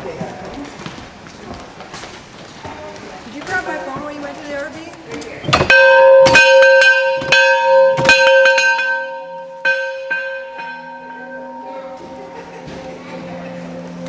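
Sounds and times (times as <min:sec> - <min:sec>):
metal bell ringing: 0:05.7 - 0:14.0.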